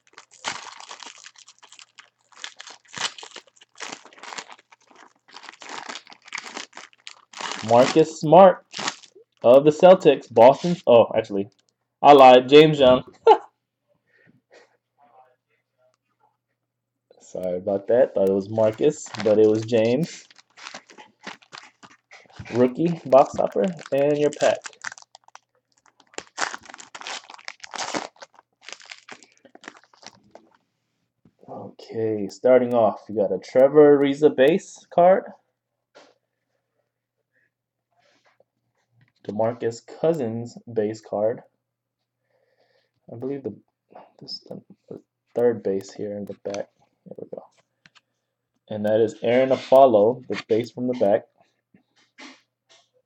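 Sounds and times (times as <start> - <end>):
plastic packaging crinkling: 0.0 - 10.9, 18.2 - 30.6.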